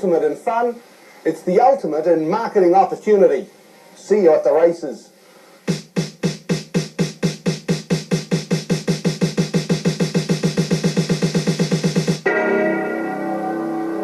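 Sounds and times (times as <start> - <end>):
synthesized drum hits falling in pitch: 5.7 - 12.4.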